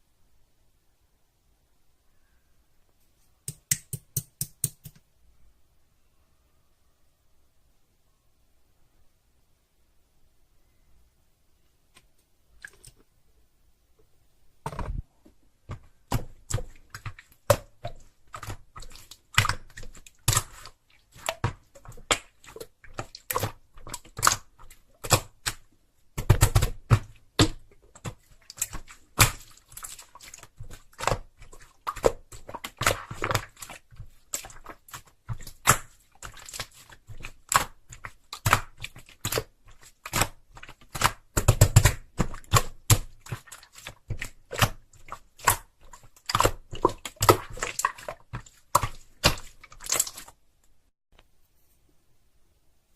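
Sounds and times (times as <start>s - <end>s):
slime clicking and popping by hand: 15.7s - 50.3s.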